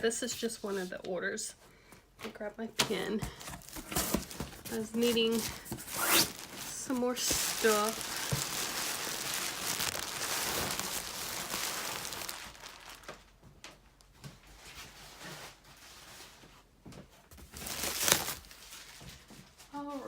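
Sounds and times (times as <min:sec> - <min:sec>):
packaging rustling and crinkling: 0:03.2 - 0:13.4, 0:17.3 - 0:19.7.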